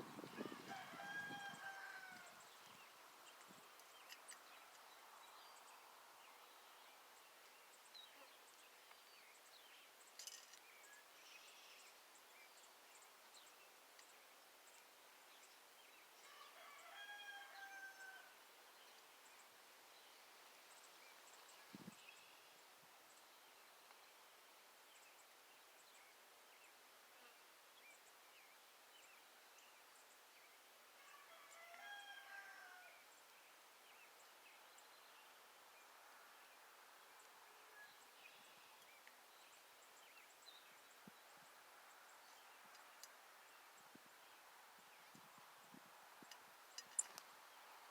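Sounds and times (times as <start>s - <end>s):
distant rooster crowing: 0.4s - 2.5s, 16.2s - 18.4s, 31.0s - 33.0s
small birds chirping: 2.2s - 16.2s, 33.1s - 47.9s
small ticks: 42.7s - 43.2s, 46.2s - 47.3s.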